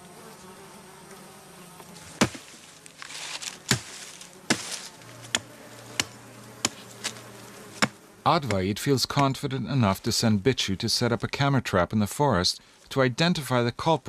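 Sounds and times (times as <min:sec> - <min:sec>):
faint buzz of insects: 0:00.0 - 0:14.0
sharp chopping blows: 0:02.2 - 0:02.6, 0:03.4 - 0:07.2, 0:07.8 - 0:08.6.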